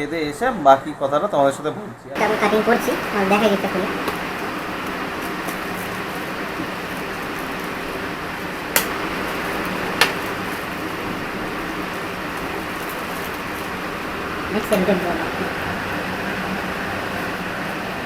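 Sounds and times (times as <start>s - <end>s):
room hiss: 2.1s - 18.0s
sharp clicks: 8.7s - 9.0s.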